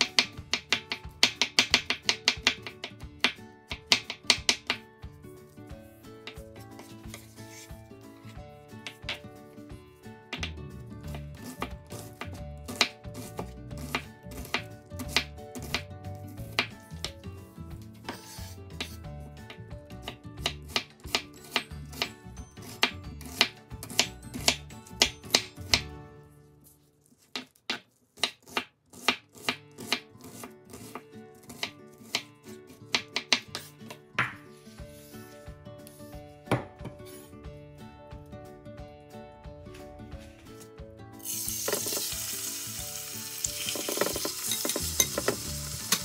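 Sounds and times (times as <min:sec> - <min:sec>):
knife chopping on wooden board: 0:00.0 - 0:04.9, 0:08.8 - 0:09.3, 0:10.3 - 0:17.2, 0:18.1 - 0:25.9, 0:27.2 - 0:34.5, 0:36.5 - 0:37.1.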